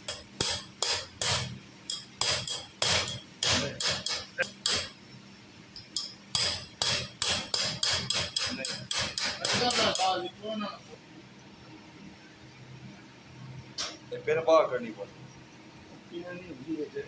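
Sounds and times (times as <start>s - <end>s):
hammer striking metal: 0.0s - 4.9s, 5.8s - 10.2s.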